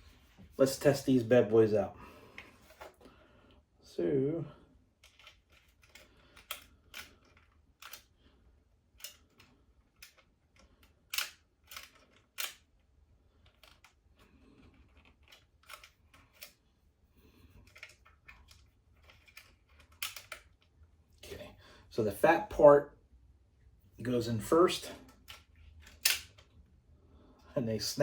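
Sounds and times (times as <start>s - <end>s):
plastic toy clicks and snaps: 7.8s - 8.1s, 9.0s - 12.7s, 19.2s - 20.6s, 25.2s - 26.5s.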